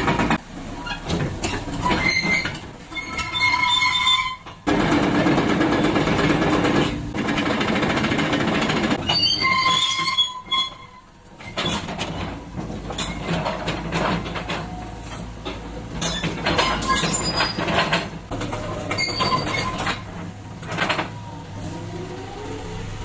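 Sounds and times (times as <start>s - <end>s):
excavator running: 0.0s - 23.0s
high metallic squeals: 1.8s - 4.6s, 9.0s - 11.8s, 18.9s - 20.0s.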